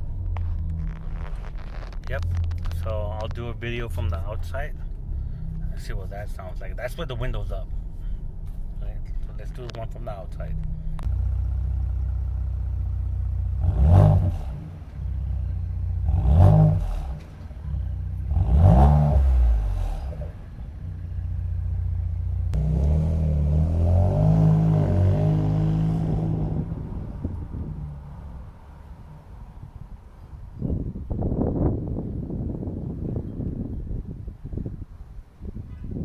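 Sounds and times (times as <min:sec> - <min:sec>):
car exhaust revving: 0:00.0 - 0:30.2.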